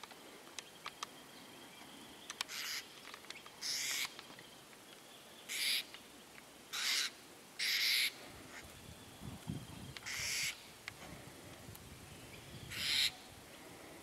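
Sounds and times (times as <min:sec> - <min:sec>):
birds giving harsh calls: 0:02.3 - 0:04.4, 0:05.4 - 0:06.0, 0:06.7 - 0:10.8, 0:12.4 - 0:13.4.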